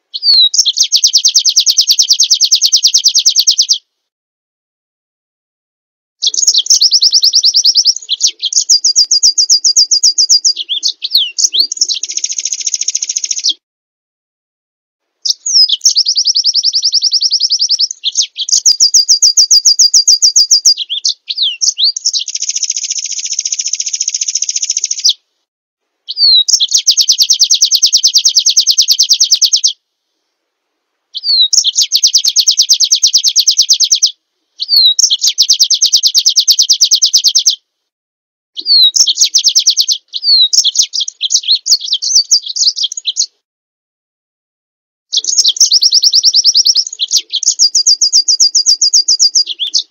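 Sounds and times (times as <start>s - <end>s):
songbird fast high trills: 6.2s - 13.6s, 45.1s - 49.9s.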